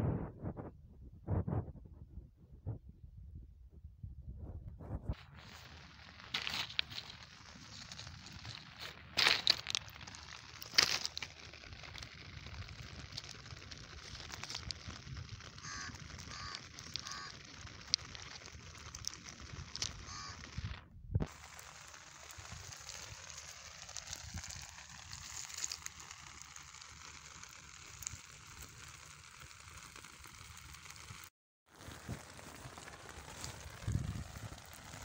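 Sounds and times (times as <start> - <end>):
rain pattering on stones: 5.2 - 35.0
short honking calls: 20.1 - 20.4.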